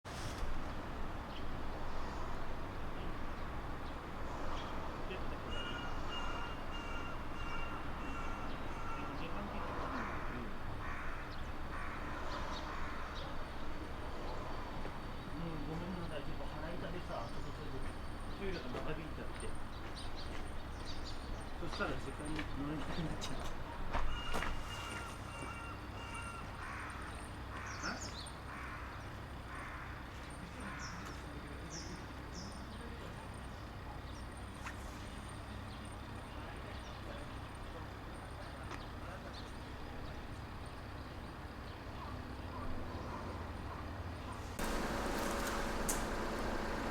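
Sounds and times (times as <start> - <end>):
hoarse bird calls: 5.4 - 13.5
crow cawing: 5.5 - 13.2, 24.1 - 30.0
steady low hum: 44.5 - 46.9.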